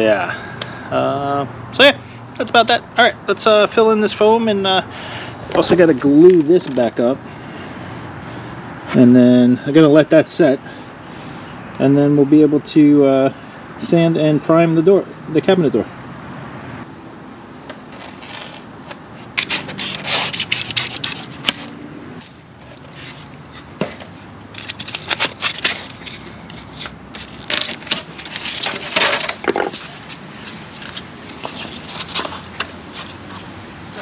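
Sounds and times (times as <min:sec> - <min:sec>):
foam crackling and scraping: 0:17.8 - 0:21.6, 0:22.6 - 0:33.2.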